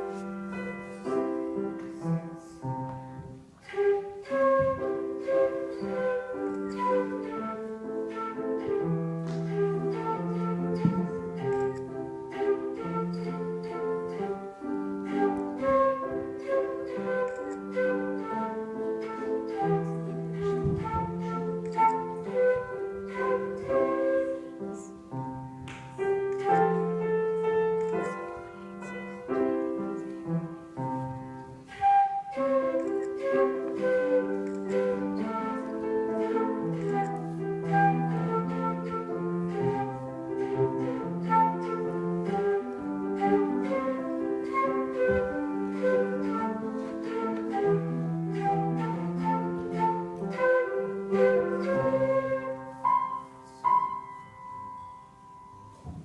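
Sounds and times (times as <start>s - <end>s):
piano piece: 0.0s - 56.0s.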